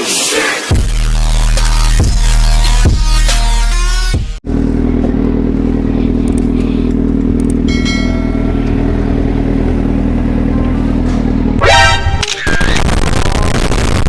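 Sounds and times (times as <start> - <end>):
motorcycle engine idling and revving: 4.1 - 12.2.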